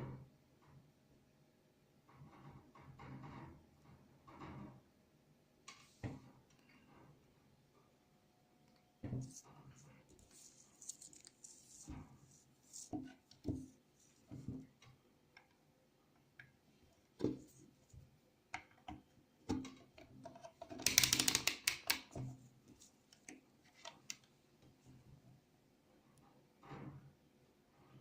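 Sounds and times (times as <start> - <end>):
small objects clicking and knocking: 19.5 - 22.2.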